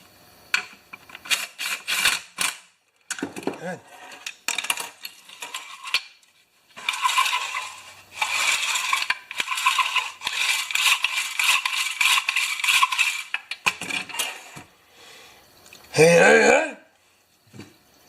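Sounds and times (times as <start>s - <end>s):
metal parts rattling and scraping: 1.0s - 14.6s.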